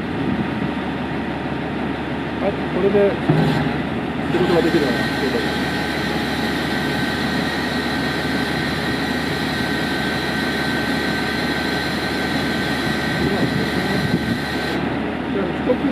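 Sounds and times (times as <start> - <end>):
vehicle engine running: 0.0 - 15.9
high whine: 2.3 - 15.9.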